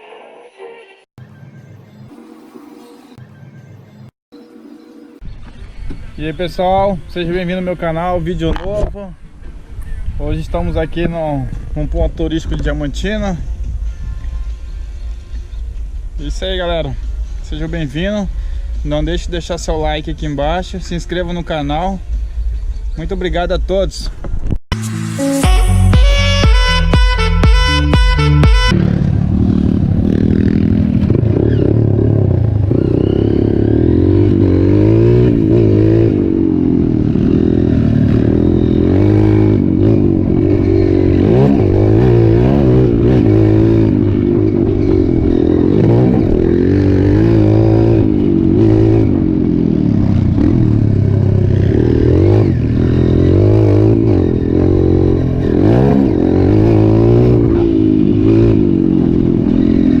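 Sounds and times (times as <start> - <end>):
motorcycle engines revving: 28.2 - 60.0.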